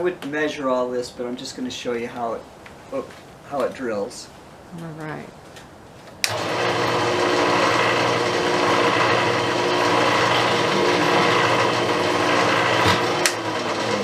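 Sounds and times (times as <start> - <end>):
drill press drilling wood: 6.2 - 14.0.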